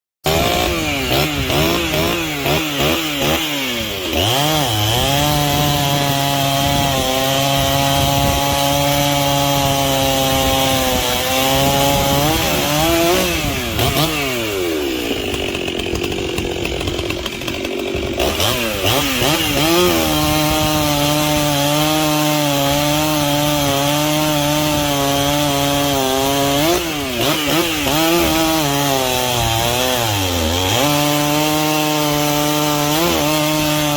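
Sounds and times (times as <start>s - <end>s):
chainsaw cutting wood: 0.2s - 33.9s
chainsaw revving: 0.2s - 33.9s.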